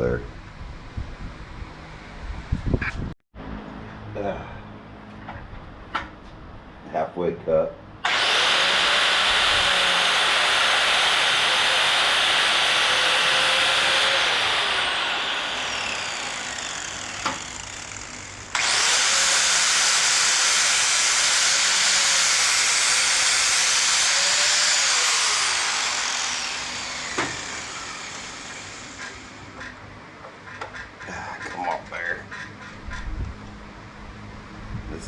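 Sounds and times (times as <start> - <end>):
grinder spinning down whine: 8.0 - 29.5
angle grinder cutting: 8.0 - 29.7.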